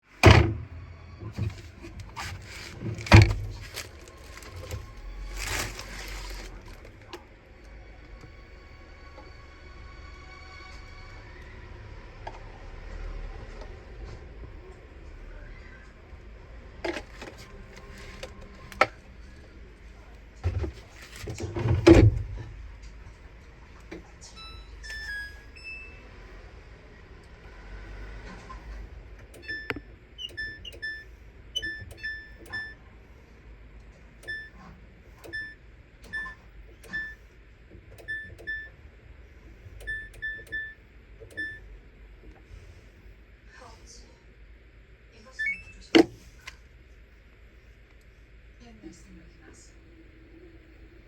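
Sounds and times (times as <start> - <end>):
knocks and loud thump: 0.2 - 0.8.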